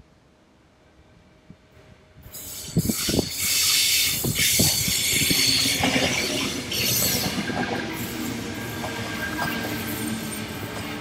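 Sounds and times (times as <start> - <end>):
train rushing hiss: 2.2 - 11.0.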